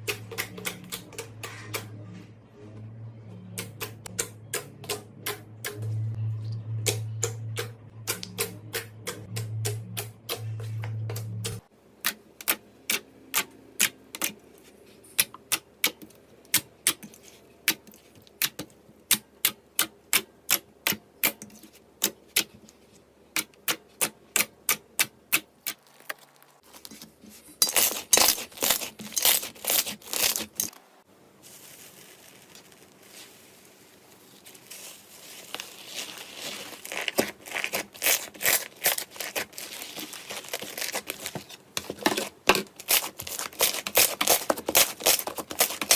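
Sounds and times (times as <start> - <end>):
slime clicking and crackling: 32.1 - 45.9.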